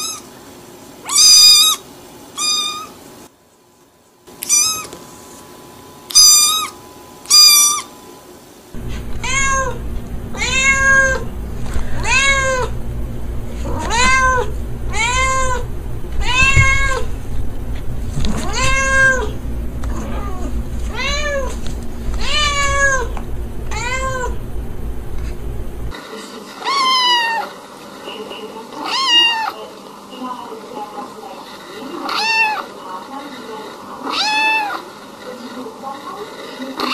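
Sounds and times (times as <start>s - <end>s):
kitten's high meows: 1.1s - 1.8s, 4.4s - 4.9s
cat meowing: 4.4s - 4.9s, 9.0s - 11.3s, 12.0s - 12.8s, 13.6s - 17.1s, 18.4s - 21.5s, 22.2s - 24.8s, 28.8s - 29.6s, 32.1s - 32.6s, 34.0s - 34.8s
low steady hum: 8.8s - 26.0s.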